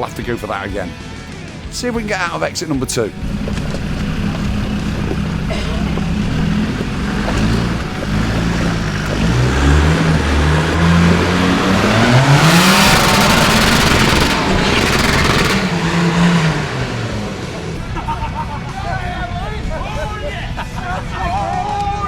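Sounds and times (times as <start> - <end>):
off-road vehicle engine revving: 1.9 - 19.0
tyres spinning in mud: 2.9 - 17.9.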